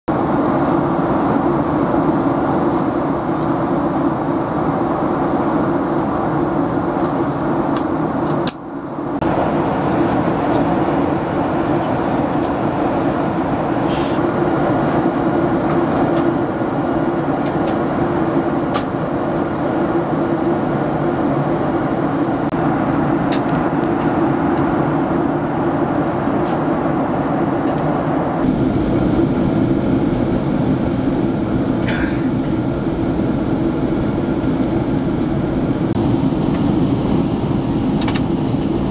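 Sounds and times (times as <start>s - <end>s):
airplane cabin engine rush: 0.1s - 38.9s
low hum: 8.7s - 38.9s
deep rumble: 8.9s - 38.9s.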